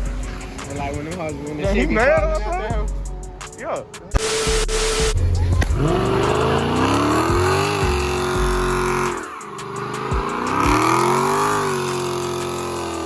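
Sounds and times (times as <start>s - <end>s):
car engine revving hard: 4.2s - 13.0s.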